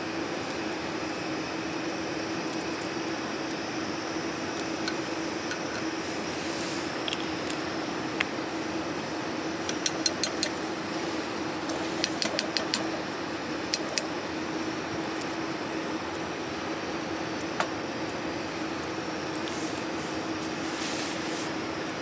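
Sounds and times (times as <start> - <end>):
rain hissing: 3.1 - 9.6, 10.5 - 14.8, 17.8 - 22.0
sharp ticks and crackles: 9.6 - 10.6, 11.7 - 13.0.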